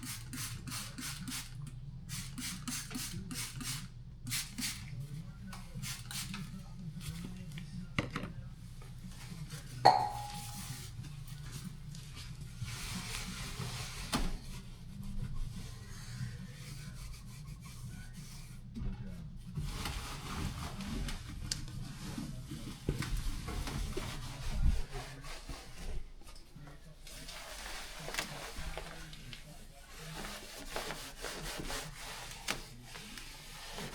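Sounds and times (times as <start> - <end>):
rubbing and scrubbing: 9.2 - 18.8, 19.5 - 33.9.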